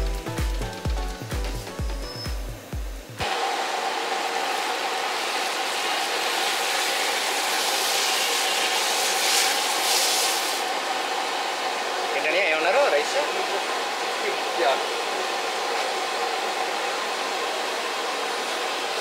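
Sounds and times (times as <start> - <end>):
music with steady beat: 0.0 - 3.2.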